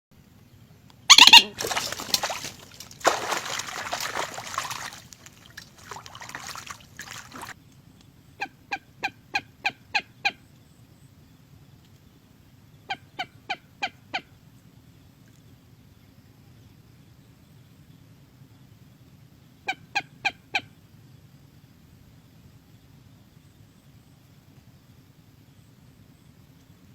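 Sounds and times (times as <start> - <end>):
moorhen calling: 1.1 - 7.5.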